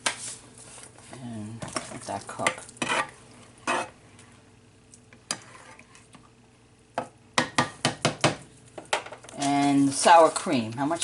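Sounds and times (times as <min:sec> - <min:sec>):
sauce simmering: 0:01.7 - 0:07.3.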